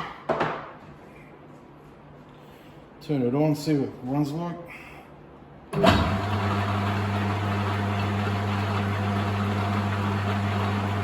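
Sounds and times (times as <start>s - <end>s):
metal lathe motor humming: 5.8s - 11.0s.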